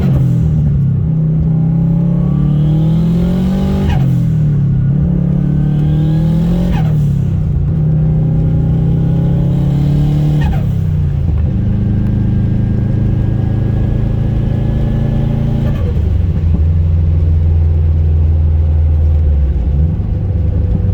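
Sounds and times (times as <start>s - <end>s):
turbocharged car engine pulling: 0.0s - 20.9s.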